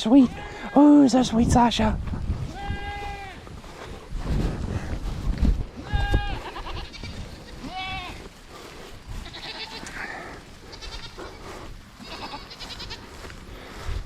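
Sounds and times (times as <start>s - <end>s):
goats bleating: 0.2s - 1.1s, 2.4s - 3.5s, 5.8s - 13.3s
low rumbling on microphone: 1.4s - 6.4s.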